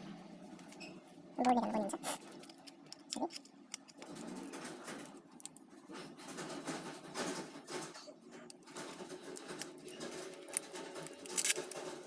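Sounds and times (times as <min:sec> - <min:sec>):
plastic phone parts clicking: 0:09.4 - 0:12.0.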